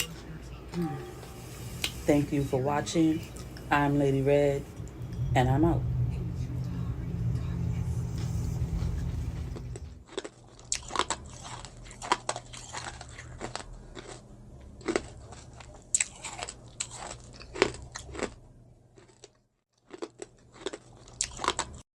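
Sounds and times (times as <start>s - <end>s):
chewing crunchy food: 8.8s - 18.4s, 19.0s - 21.8s.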